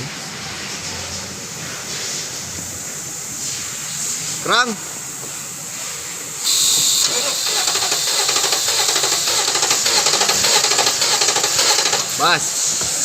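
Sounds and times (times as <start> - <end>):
brief hiss: 3.3 - 13.0
starter motor cranking: 6.5 - 13.0.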